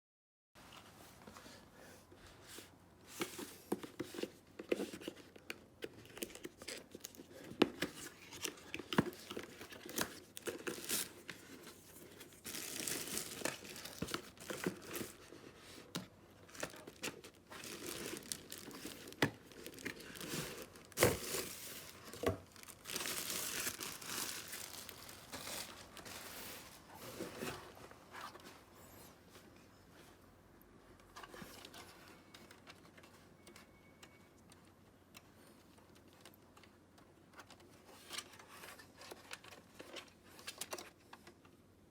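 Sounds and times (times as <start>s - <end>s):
crackling packaging: 3.2s - 28.4s
plastic wrapping crinkling and tearing: 6.0s - 26.8s.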